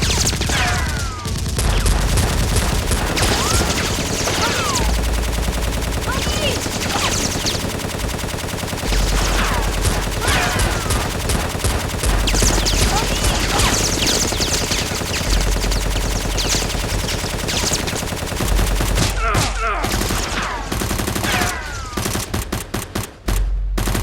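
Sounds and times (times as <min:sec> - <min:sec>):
automatic gunfire: 0:00.0 - 0:24.0.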